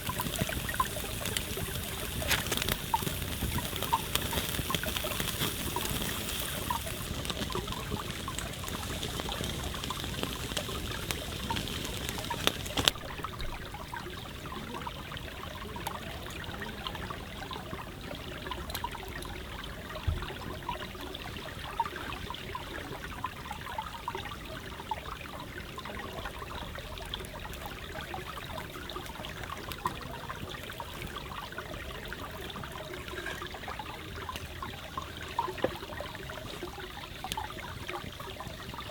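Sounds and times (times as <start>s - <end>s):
high hiss: 0.0s - 13.0s
forest stream trickling: 0.0s - 38.9s
small ticks and pops: 0.0s - 38.9s.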